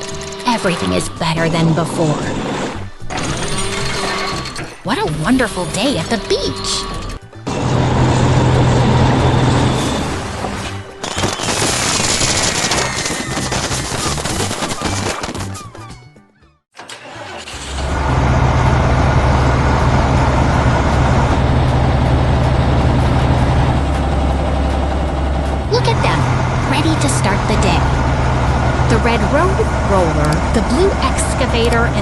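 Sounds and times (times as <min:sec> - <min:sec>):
heavy machinery engine running: 0:00.0 - 0:13.7, 0:16.8 - 0:32.0
background music: 0:00.0 - 0:16.6, 0:18.8 - 0:32.0
low engine hum: 0:17.6 - 0:32.0.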